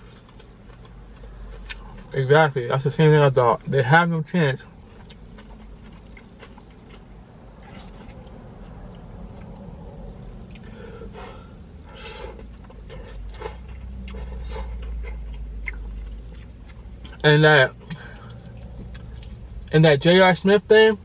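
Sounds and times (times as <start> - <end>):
person chewing food: 0.0 - 2.2, 4.6 - 9.8, 10.4 - 19.7
low rumble: 4.7 - 17.2.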